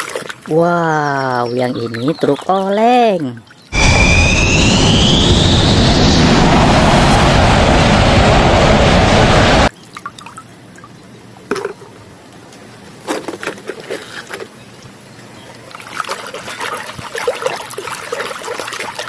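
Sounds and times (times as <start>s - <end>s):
water splashing and trickling: 0.0s - 3.7s, 9.7s - 10.9s, 15.6s - 19.0s.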